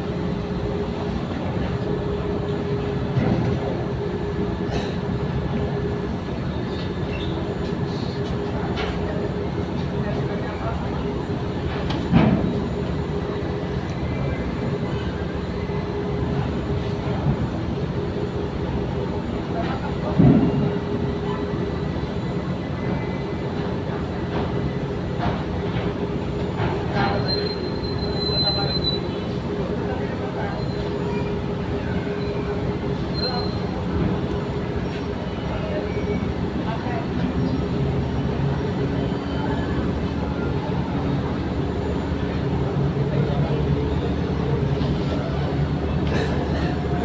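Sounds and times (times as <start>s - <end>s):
ship engine droning: 0.0s - 47.0s.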